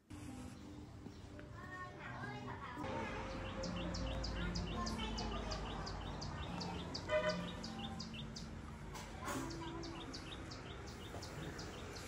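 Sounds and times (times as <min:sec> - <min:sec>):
bird chirping rapidly: 0:03.3 - 0:08.6, 0:09.3 - 0:12.0.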